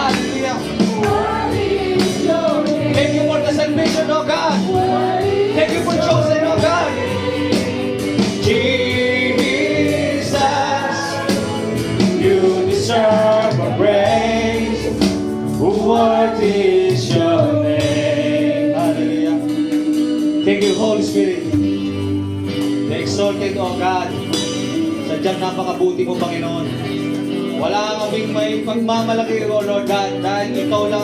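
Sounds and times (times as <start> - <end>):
voices singing praise song: 0.0 - 22.0
band accompaniment: 0.0 - 31.0
steady percussion beat: 0.0 - 31.0.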